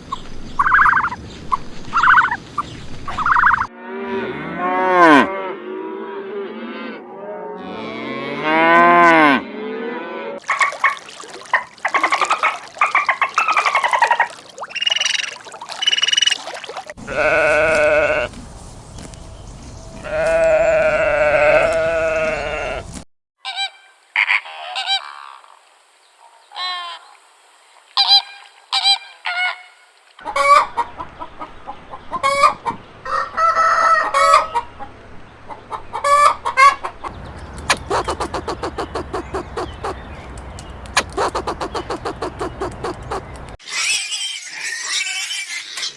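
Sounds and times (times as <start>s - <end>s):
farm fowl calls: 0.6s - 3.7s, 10.4s - 25.4s, 28.0s - 34.9s, 35.5s - 43.6s
geese honking: 10.4s - 23.7s, 37.1s - 43.6s.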